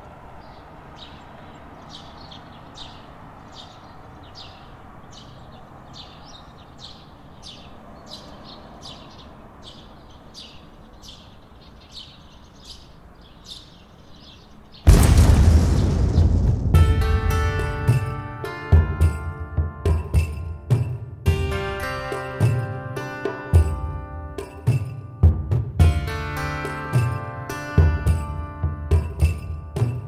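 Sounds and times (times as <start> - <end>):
small birds chirping: 0.0 - 16.4
outdoor ambience hiss: 0.0 - 20.1.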